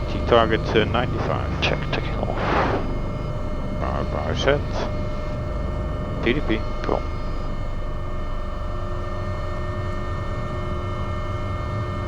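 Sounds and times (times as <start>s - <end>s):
helicopter engines and rotor: 0.0s - 12.0s.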